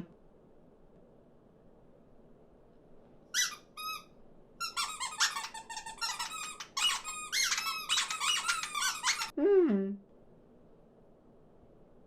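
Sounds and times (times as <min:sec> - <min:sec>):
short squeaks: 0:03.3 - 0:09.3.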